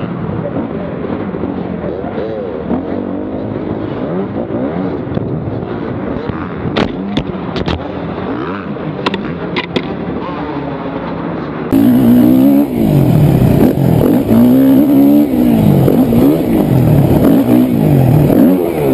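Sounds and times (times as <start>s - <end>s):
dirt bike engine revving: 11.7s - 18.9s.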